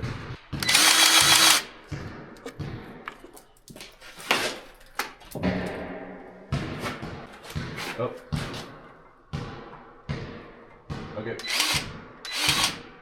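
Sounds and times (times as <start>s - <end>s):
powered grease gun whirring: 0.6s - 1.7s, 11.4s - 12.8s.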